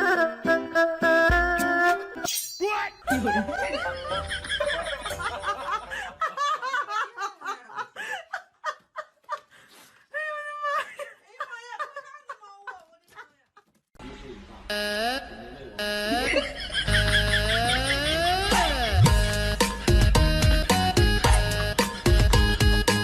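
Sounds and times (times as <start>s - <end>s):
people laughing: 3.1s - 9.5s, 10.3s - 13.6s, 16.0s - 20.0s.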